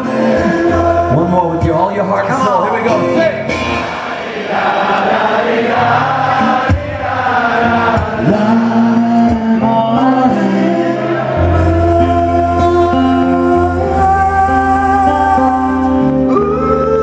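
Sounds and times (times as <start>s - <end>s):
bass: 0.0s - 3.8s, 11.4s - 17.0s
many voices singing together: 3.6s - 14.0s.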